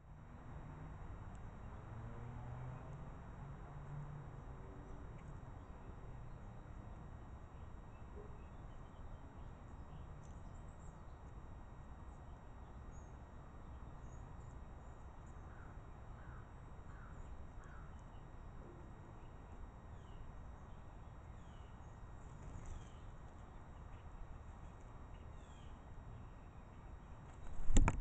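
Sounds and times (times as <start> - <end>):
small bird calls: 14.0 - 18.2, 19.2 - 27.2.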